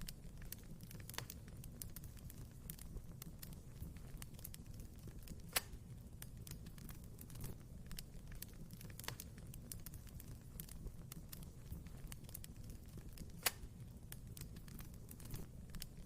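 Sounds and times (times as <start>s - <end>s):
low rumble of flames: 0.0s - 16.0s
wood fire snaps and pops: 0.0s - 16.0s.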